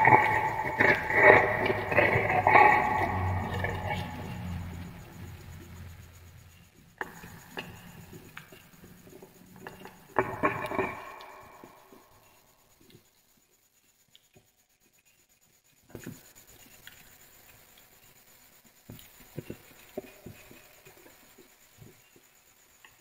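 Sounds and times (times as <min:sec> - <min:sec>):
scraping: 0:00.0 - 0:05.8.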